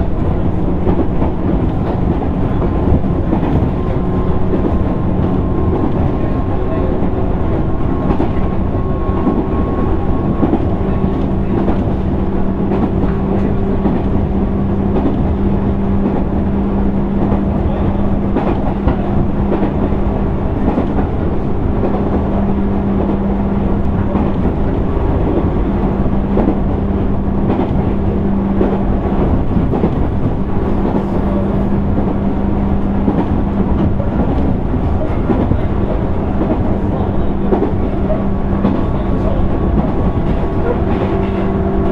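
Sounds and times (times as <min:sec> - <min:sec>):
running gear hum: 0:00.0 - 0:41.9
train wheels rumbling on rail: 0:00.0 - 0:41.9.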